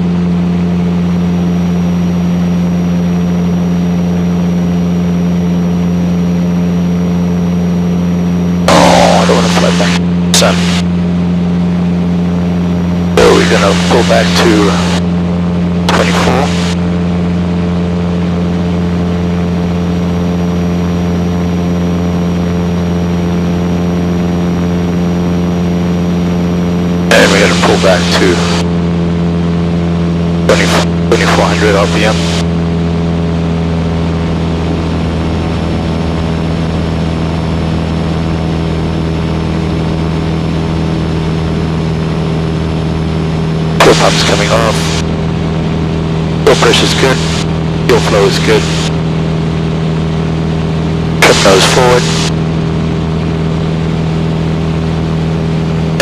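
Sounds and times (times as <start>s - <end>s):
aircraft engine and propeller droning: 0.0s - 56.0s.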